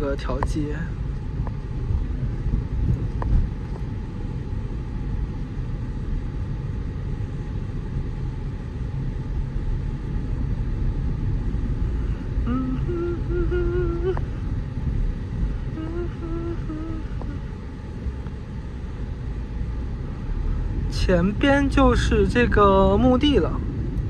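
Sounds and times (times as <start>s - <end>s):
car engine and tyres rumbling: 0.0s - 24.0s
person humming: 12.1s - 14.4s, 15.6s - 17.5s.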